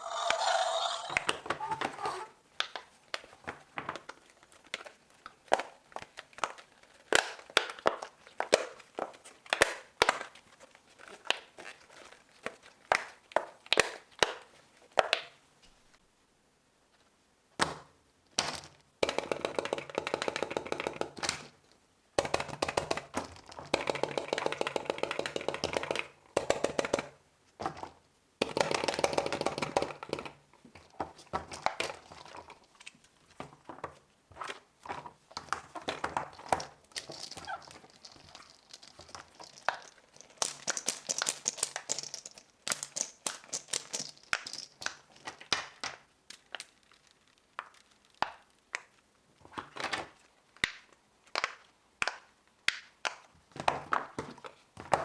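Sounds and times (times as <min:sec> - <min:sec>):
crinkling: 0:00.0 - 0:13.6, 0:30.8 - 0:50.3.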